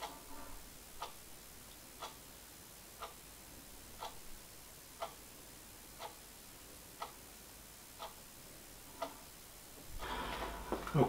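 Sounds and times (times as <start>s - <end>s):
clock ticking: 0.0s - 3.3s, 3.9s - 4.3s, 5.0s - 5.3s, 5.9s - 6.2s, 7.0s - 7.3s, 8.0s - 8.2s, 8.9s - 9.3s.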